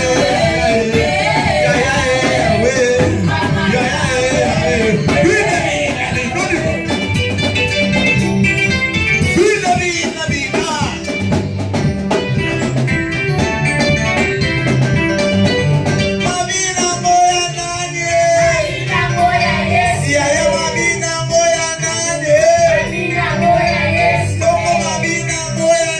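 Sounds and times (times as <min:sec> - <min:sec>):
person singing: 0:00.0 - 0:06.9
worship band playing: 0:00.0 - 0:25.9.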